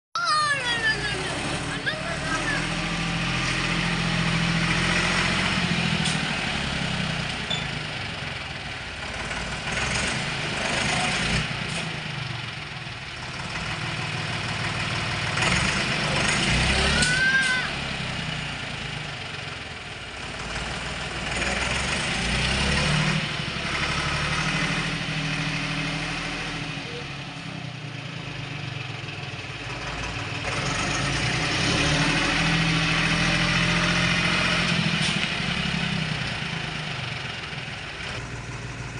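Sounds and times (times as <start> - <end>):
tractor diesel engine running: 0.2 - 38.9.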